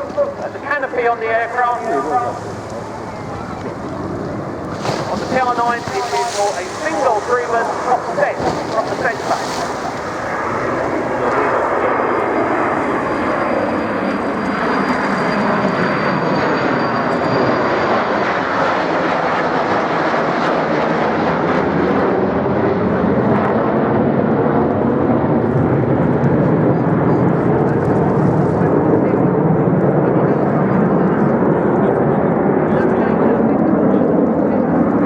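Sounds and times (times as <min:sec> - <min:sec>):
jet engines rushing: 0:00.0 - 0:35.0.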